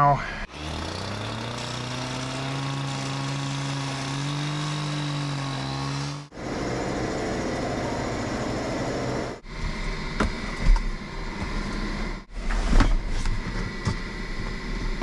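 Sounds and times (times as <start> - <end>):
power saw cutting plexiglass: 0.5 - 9.4.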